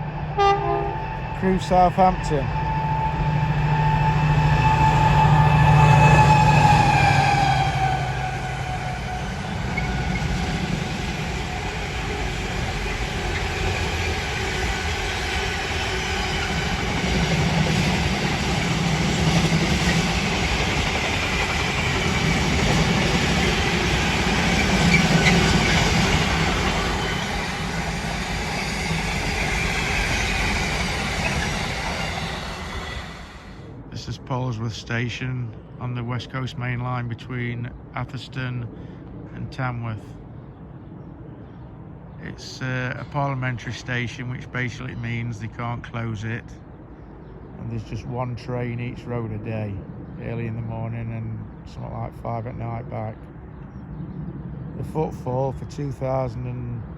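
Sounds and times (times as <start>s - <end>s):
train wagons rumbling over rails: 0.0s - 33.8s, 42.3s - 46.3s
locomotive passing: 0.0s - 35.2s, 42.2s - 46.6s.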